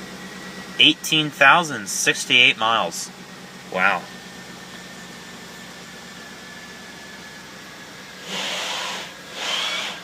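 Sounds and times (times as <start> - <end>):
engine idling low hum: 0.0 - 10.0
climate control blower hiss: 8.2 - 10.0.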